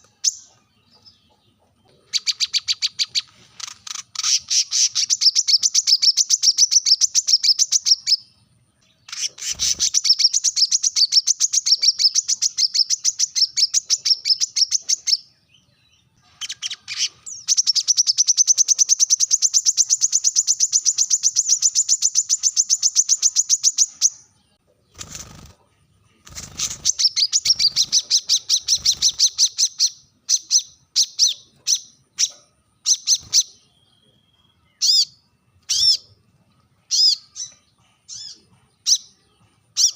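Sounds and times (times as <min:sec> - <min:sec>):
bird singing rapid trills: 0:00.0 - 0:25.5, 0:26.2 - 0:36.2.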